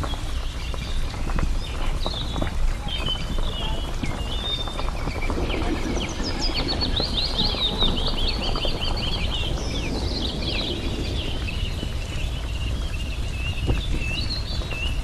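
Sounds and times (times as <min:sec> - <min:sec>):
small songbirds chirping: 0:00.0 - 0:15.0
steady low rumble: 0:00.0 - 0:15.0.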